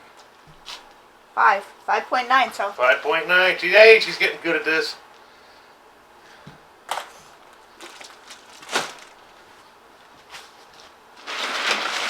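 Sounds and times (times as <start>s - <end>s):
knocks and rustles of handling: 6.4s - 12.0s.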